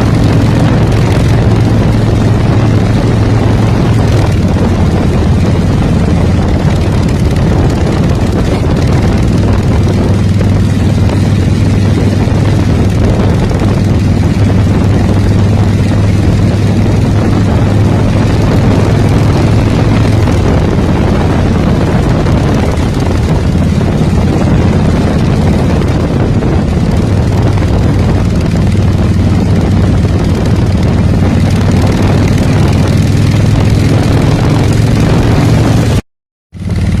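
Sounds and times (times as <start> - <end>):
constant rushing noise: 0.0 - 36.0, 36.6 - 37.0
motorcycle engine running: 0.0 - 37.0.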